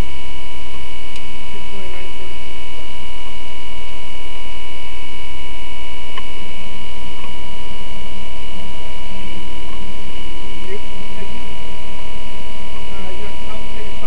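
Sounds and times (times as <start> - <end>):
whining tones: 0.0 - 14.0
car engine idling: 6.1 - 14.0.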